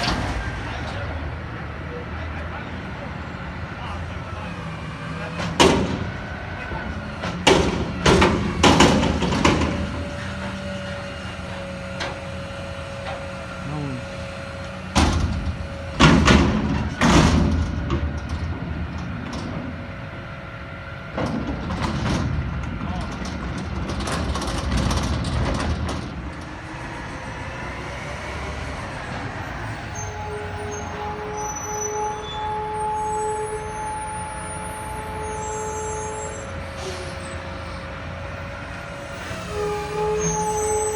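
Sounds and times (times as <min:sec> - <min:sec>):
diesel engine running: 0:00.0 - 0:31.4
hydraulic pump whine: 0:04.3 - 0:40.9
clanks and rattles: 0:21.1 - 0:26.5.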